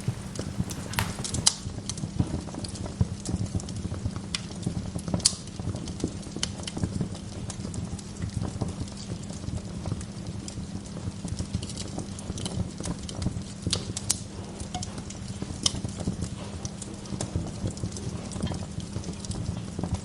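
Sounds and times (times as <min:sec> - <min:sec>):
wood fire crackling: 0:00.0 - 0:01.6.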